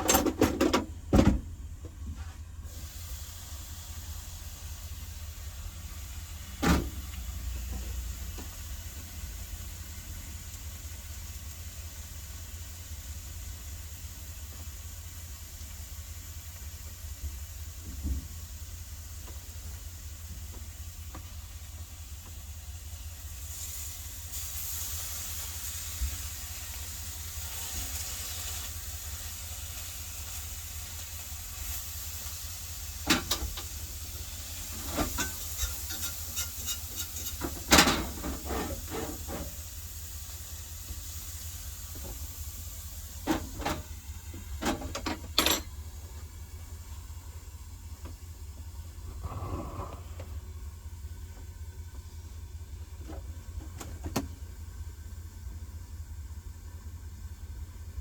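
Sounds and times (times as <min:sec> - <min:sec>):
steaks sizzling in a frying pan: 0:18.7 - 0:43.2
steady low hum: 0:41.8 - 0:58.0.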